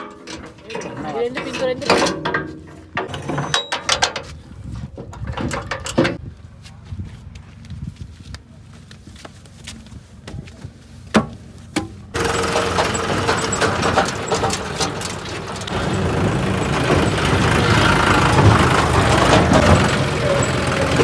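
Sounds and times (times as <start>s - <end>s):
tractor diesel engine rumbling: 0.0s - 6.2s, 11.4s - 21.0s.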